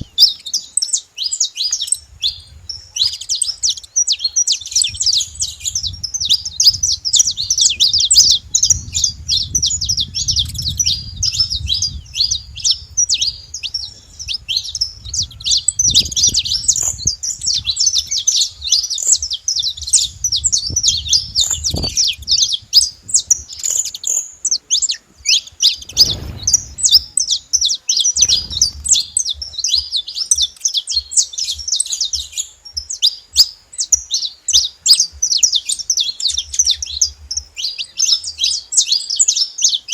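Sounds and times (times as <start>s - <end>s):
finches chirping: 0.0s - 39.9s
low rumbles: 4.7s - 23.5s, 25.7s - 29.8s.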